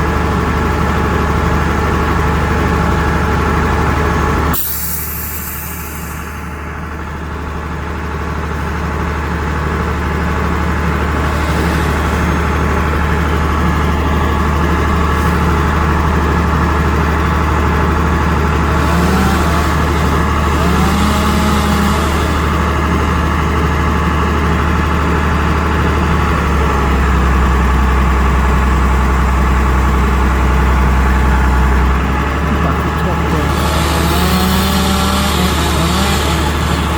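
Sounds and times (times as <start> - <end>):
truck engine humming: 0.0 - 36.9.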